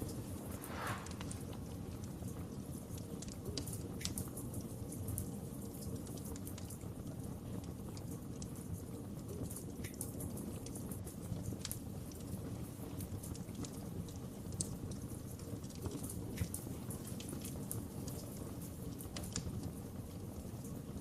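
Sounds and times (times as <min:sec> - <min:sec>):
wood fire rumbling: 0:00.2 - 0:01.6.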